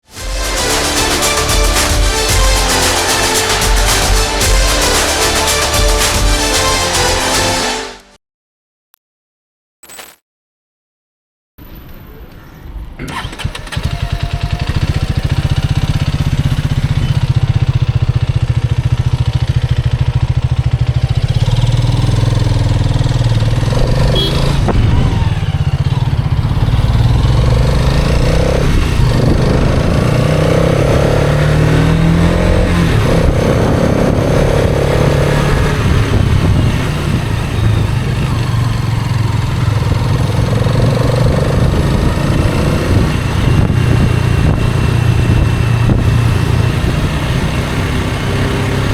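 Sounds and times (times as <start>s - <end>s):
motorcycle engine running: 13.1s - 48.9s.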